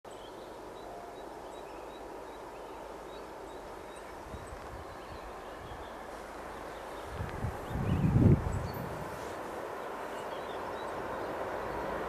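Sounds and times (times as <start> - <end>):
small birds chirping: 0.1 - 12.0
wind buffeting microphone: 3.9 - 12.0.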